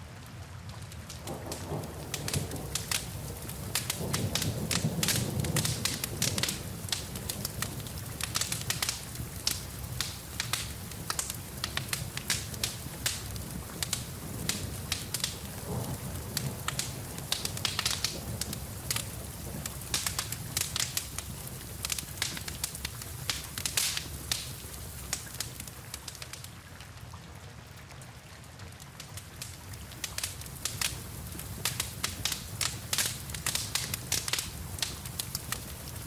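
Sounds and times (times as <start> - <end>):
wood fire crackling: 0.0 - 27.0, 28.2 - 36.0
rain hissing: 0.9 - 26.6, 29.3 - 36.0.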